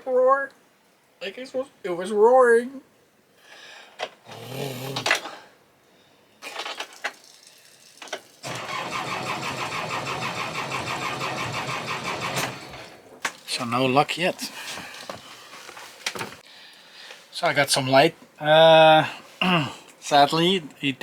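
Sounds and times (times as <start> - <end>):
starter motor cranking engine: 8.4 - 13.1.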